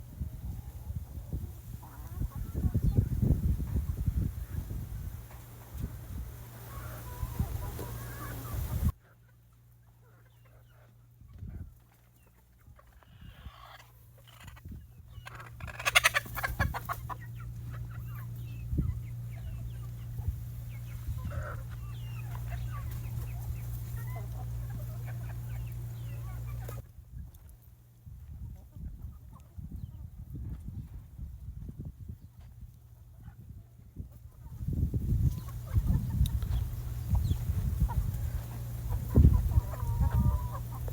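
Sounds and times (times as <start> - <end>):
hens clucking: 0.2 - 27.5, 28.2 - 40.9
hens squawking: 6.4 - 9.0, 12.2 - 26.8, 34.5 - 40.9.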